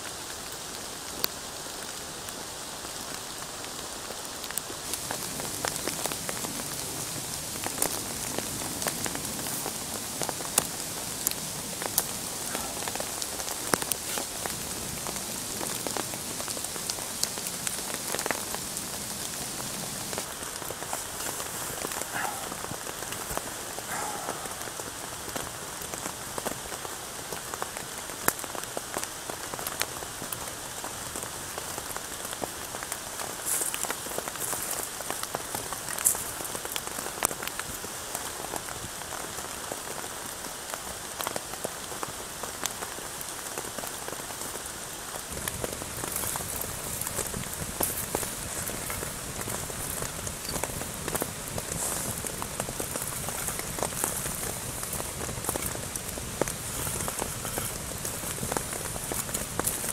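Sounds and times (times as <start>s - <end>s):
steady rain hiss: 0.0s - 59.9s
sharp raindrop ticks: 45.3s - 59.9s.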